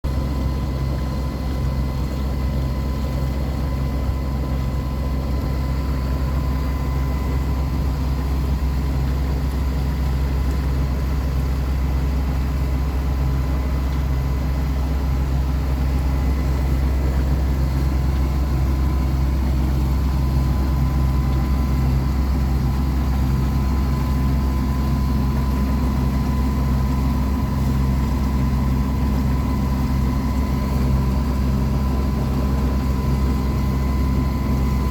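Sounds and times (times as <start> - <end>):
boat engine droning: 0.0 - 34.9.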